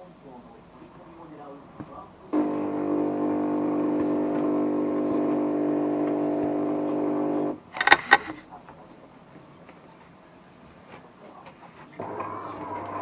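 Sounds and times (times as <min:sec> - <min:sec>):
espresso machine pump humming: 0:02.4 - 0:08.2.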